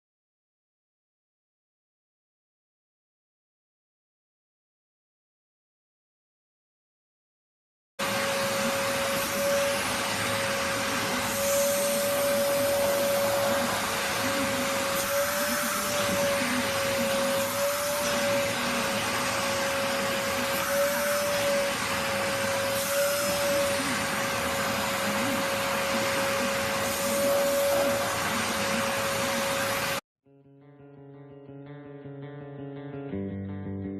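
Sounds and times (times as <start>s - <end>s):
vacuum cleaner motor hum: 8.0s - 30.0s.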